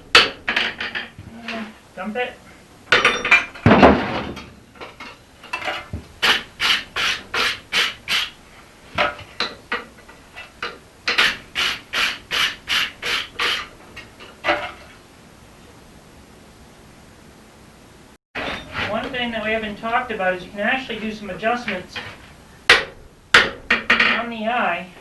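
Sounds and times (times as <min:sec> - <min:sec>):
hand tool scraping steel: 0:04.8 - 0:08.4, 0:09.0 - 0:15.0, 0:18.4 - 0:19.5.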